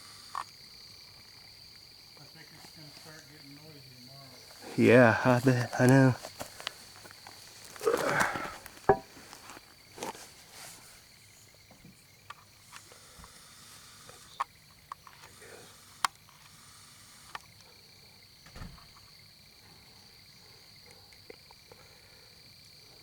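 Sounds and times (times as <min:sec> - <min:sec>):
high-pitched insect trill: 0:00.0 - 0:23.0
light clicks and rustles: 0:05.5 - 0:10.8.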